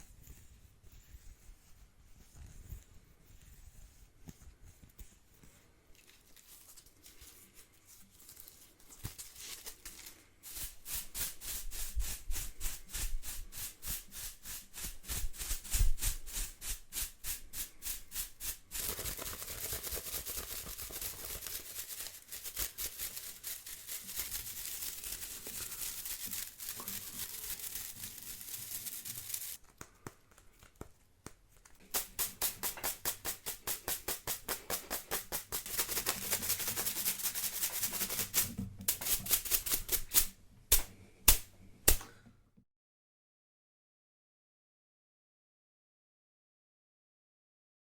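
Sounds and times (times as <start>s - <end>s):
broom bristles brushing: 5.9s - 29.6s, 31.8s - 40.3s.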